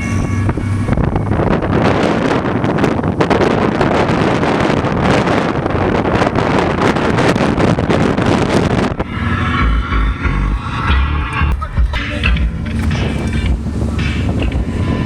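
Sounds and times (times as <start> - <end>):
music with heavy pulsing bass: 0.0 - 3.1, 8.3 - 15.0
vehicle road noise: 0.0 - 15.0
wind buffeting microphone: 0.0 - 15.0.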